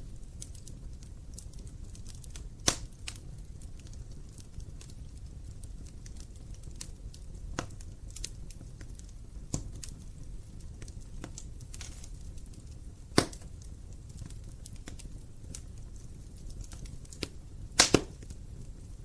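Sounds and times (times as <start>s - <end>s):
wood fire crackling in fireplace: 0.0s - 19.0s
loud sharp crack: 17.8s - 18.2s.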